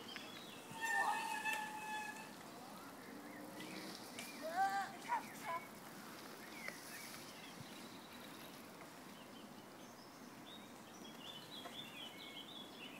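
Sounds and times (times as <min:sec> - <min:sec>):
faint outdoor background noise: 0:00.0 - 0:12.9
small birds chirping: 0:00.0 - 0:12.9.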